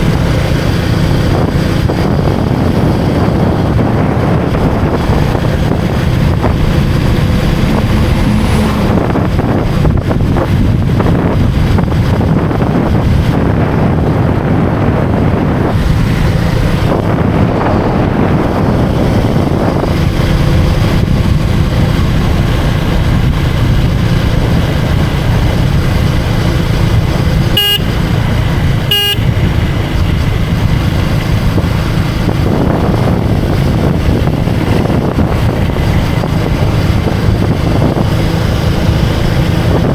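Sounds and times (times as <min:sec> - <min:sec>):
vehicle engine running: 0:00.0 - 0:39.9
wind rumble on microphone: 0:00.0 - 0:39.9
vehicle horn beeps: 0:27.5 - 0:28.2, 0:28.8 - 0:29.4.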